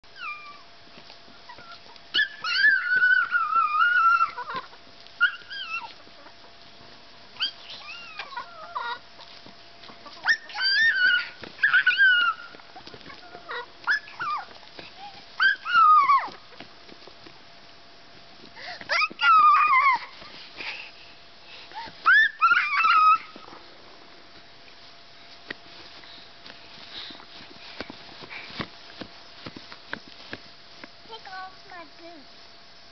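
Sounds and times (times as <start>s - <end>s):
dog whining and whimpering: 0.1s - 0.7s, 1.5s - 6.0s, 7.4s - 9.0s, 10.1s - 16.4s, 18.9s - 20.2s, 22.0s - 23.6s.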